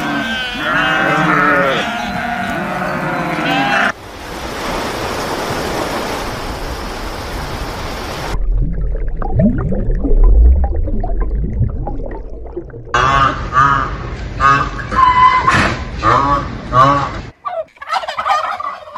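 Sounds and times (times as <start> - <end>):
low rumble: 8.3 - 14.8.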